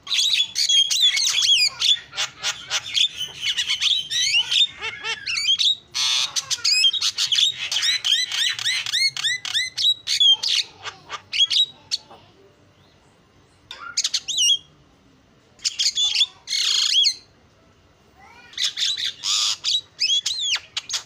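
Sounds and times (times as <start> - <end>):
harsh rasping squawk: 0.1 - 12.2, 15.6 - 17.3, 18.4 - 21.0.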